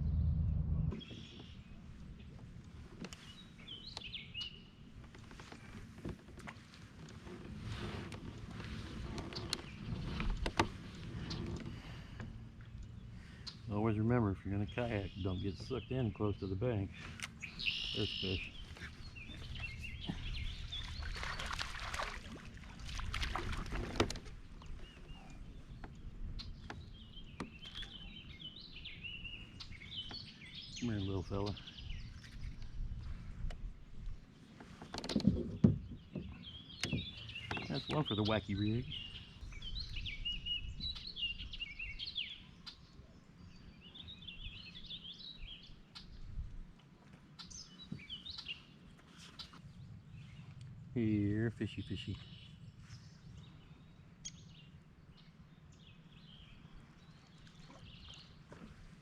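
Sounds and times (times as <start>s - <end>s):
noisy rush: 0.0s - 1.1s
low background rumble: 0.0s - 5.2s
small birds chirping: 0.9s - 5.7s, 9.2s - 23.3s, 24.4s - 59.0s
songbird warbling: 14.4s - 21.8s.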